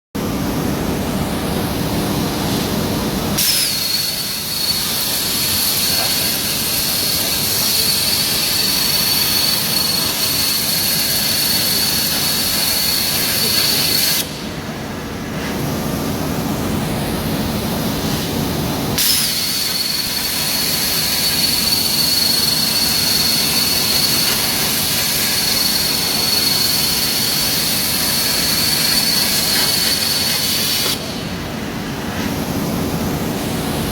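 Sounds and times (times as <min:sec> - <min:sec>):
plasma torch cutting hiss: 0:03.4 - 0:14.5, 0:18.9 - 0:33.7.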